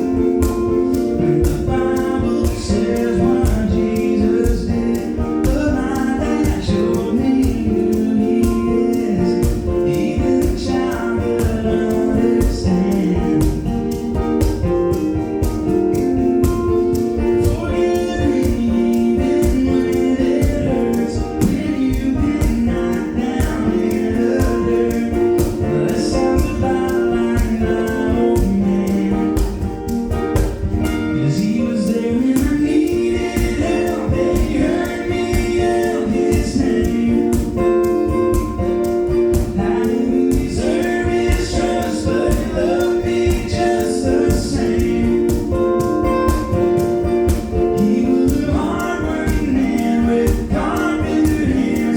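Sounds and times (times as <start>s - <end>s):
steady drum beat: 0.0s - 51.9s
voices singing gospel: 0.0s - 51.9s.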